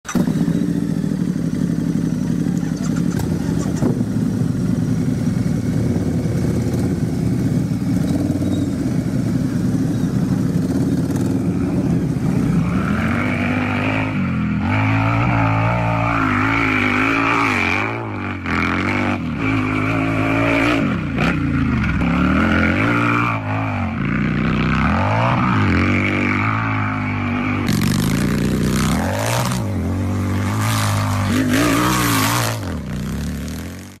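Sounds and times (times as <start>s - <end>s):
motorcycle engine revving: 0.0s - 34.0s
motorcycle engine idling: 0.1s - 12.6s.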